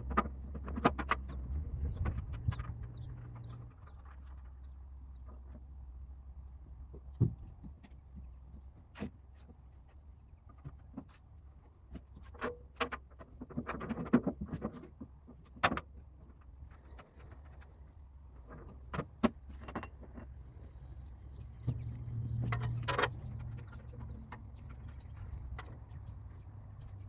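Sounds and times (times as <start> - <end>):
steady low hum: 16.6 - 27.0
metallic clinks and knocks: 16.8 - 27.0.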